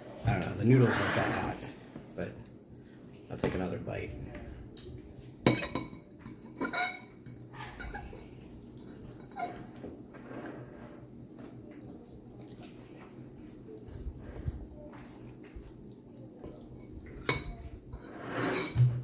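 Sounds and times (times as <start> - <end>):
utensil clinking against bowl: 5.4 - 9.8, 16.4 - 19.0.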